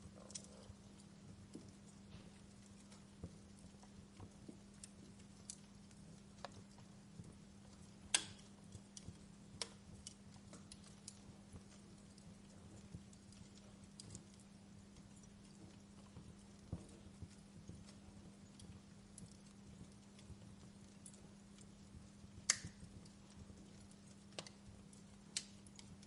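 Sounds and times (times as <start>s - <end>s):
logs crackling in a fireplace: 0.0s - 26.0s.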